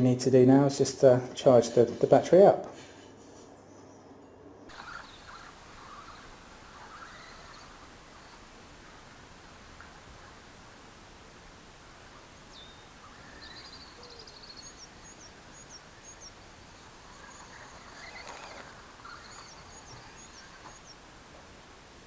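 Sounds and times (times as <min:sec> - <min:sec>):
outdoor background noise: 0:00.0 - 0:22.0
bird chirping: 0:03.7 - 0:21.1.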